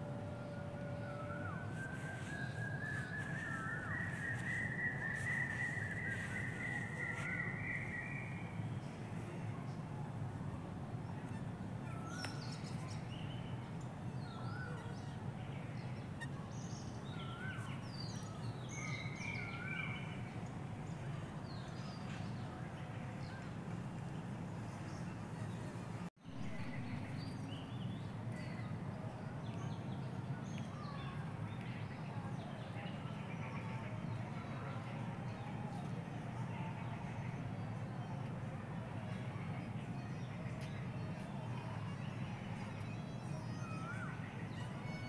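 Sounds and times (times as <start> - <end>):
low background hum: 0.0 - 45.0
birds calling and chirping: 1.4 - 8.6.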